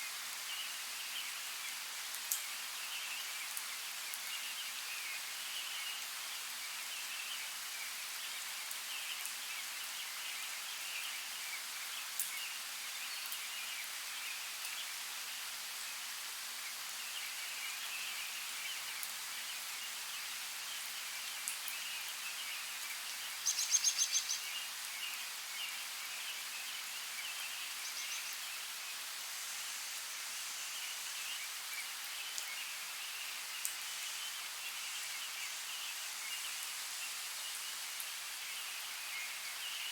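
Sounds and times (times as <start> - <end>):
small birds chirping: 16.8 - 39.9.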